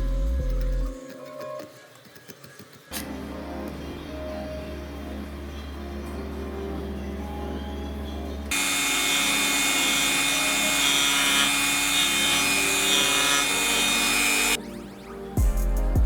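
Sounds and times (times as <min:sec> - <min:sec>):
rotary tool grinding metal: 0:08.5 - 0:14.6
music with a beat: 0:15.4 - 0:16.0.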